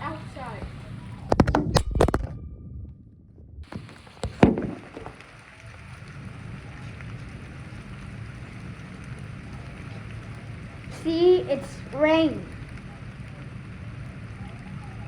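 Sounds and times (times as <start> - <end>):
steady rain falling: 0.0 - 1.6, 3.6 - 15.0
sharp knocks and clatters: 1.3 - 5.3.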